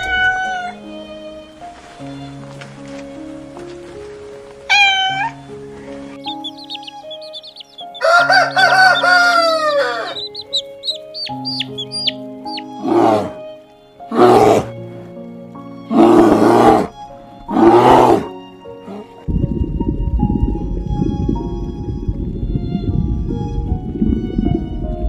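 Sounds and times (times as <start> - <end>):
background music: 0.0 - 25.0
high cheeping calls: 6.2 - 12.8
loud harsh bird calls: 6.2 - 13.3
rooster crowing: 7.6 - 10.4.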